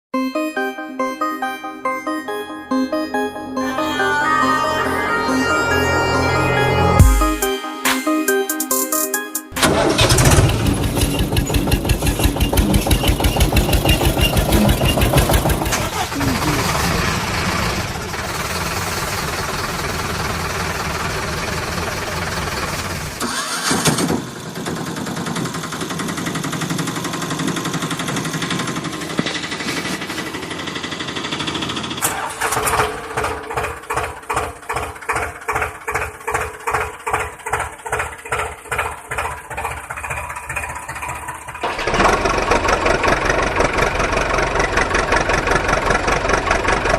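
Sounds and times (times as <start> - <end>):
vehicle engine chugging: 9.6 - 46.9.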